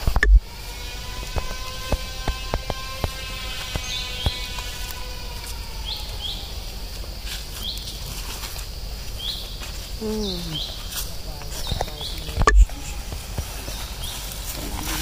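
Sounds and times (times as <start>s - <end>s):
steady low rumble: 0.0s - 7.5s, 10.8s - 15.0s
bird chirping: 0.0s - 8.0s, 9.1s - 15.0s.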